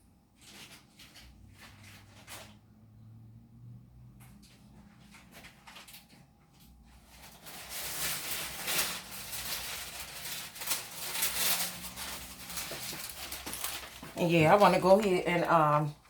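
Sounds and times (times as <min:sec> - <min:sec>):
rustling with light knocks: 0:04.2 - 0:15.1.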